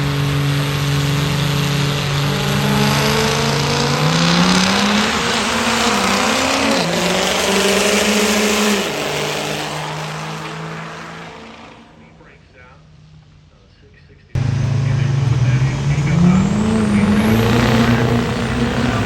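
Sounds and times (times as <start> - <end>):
diesel pickup engine running hard: 0.0 - 12.1, 14.4 - 19.0
loud rushing noise: 14.4 - 19.0.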